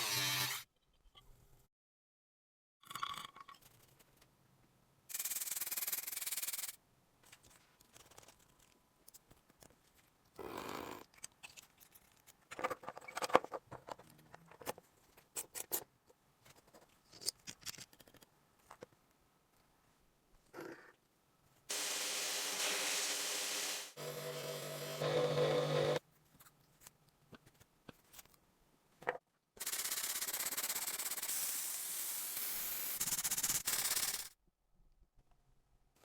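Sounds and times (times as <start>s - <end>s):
hissing noise: 21.7s - 24.6s.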